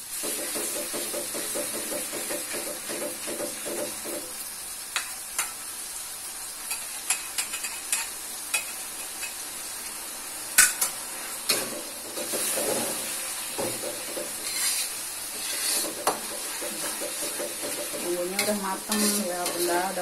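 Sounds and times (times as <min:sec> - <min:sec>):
sauce sizzling in a wok: 0:00.0 - 0:20.0
spatula clanking on a wok: 0:00.2 - 0:04.3, 0:10.6 - 0:13.0, 0:13.6 - 0:20.0
metal spatula scraping a pan: 0:10.6 - 0:20.0.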